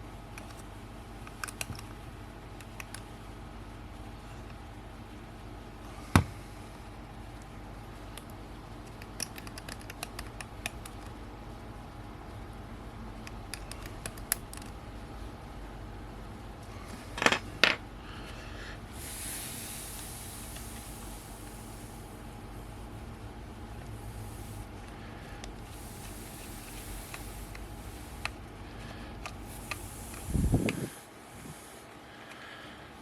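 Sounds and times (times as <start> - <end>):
steady hiss: 17.9 - 32.6.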